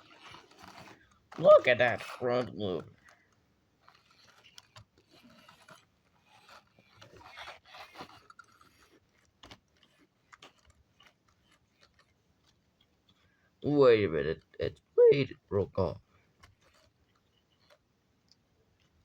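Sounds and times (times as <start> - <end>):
plastic toy trucks rattling: 0.0 - 14.9.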